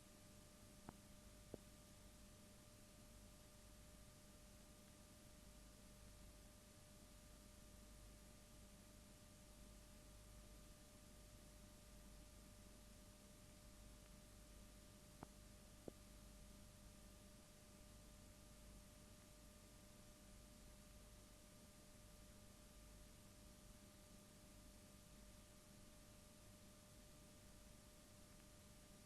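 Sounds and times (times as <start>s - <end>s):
faint recording hiss and hum: 0.0s - 29.0s.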